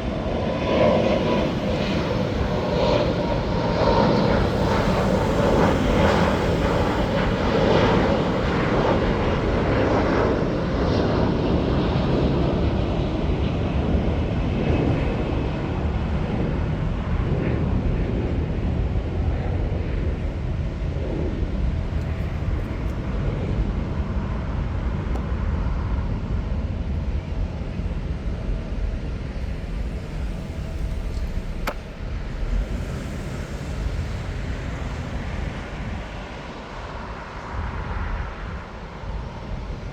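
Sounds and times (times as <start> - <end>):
low rumble: 0.0 - 11.9, 29.3 - 38.7
jet engines rushing: 0.0 - 26.0, 28.6 - 39.9.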